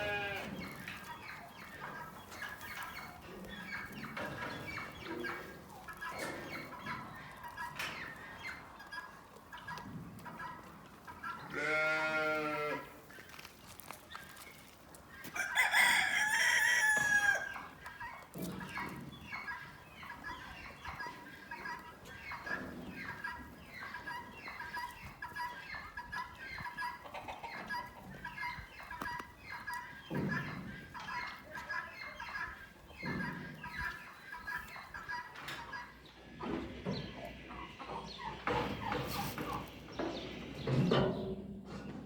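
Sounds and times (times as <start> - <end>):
chickens clucking: 0.0 - 42.0
rooster crowing: 15.4 - 17.5.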